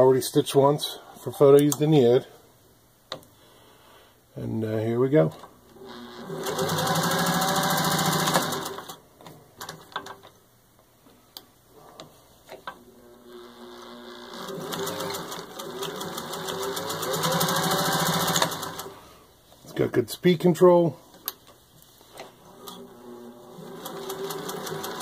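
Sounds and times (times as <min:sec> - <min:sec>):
sewing machine stitching: 0:05.8 - 0:09.0, 0:13.0 - 0:19.0, 0:22.5 - 0:25.0.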